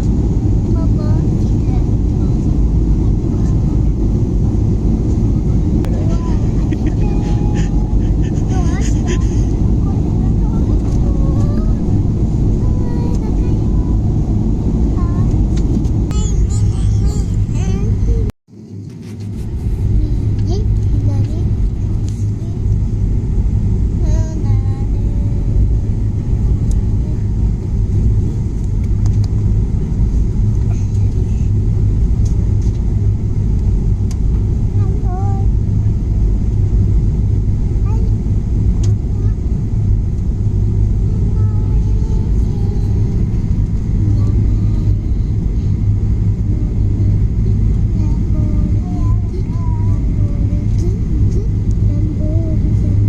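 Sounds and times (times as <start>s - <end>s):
jet airliner cabin rumble: 0.0s - 53.0s
high-pitched voice gliding: 5.8s - 14.4s, 16.1s - 18.3s.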